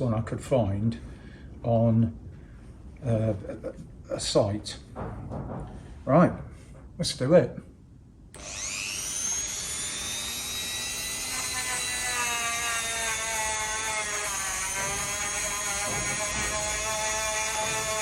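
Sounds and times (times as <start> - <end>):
rotary tool wire brush whine: 8.4 - 18.0.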